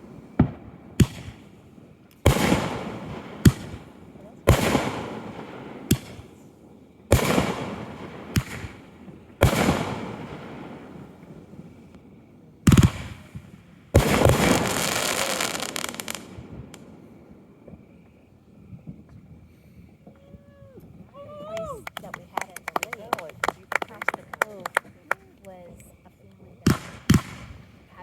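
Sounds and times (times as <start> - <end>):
fireworks booming: 0.0 - 28.0
fireworks crackling: 0.0 - 28.0.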